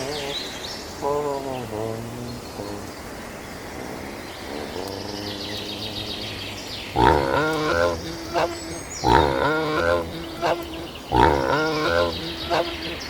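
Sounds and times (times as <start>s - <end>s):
birds chirping: 0.0s - 13.0s
outdoor background noise: 0.0s - 13.0s
loud farm animal call: 7.0s - 13.0s.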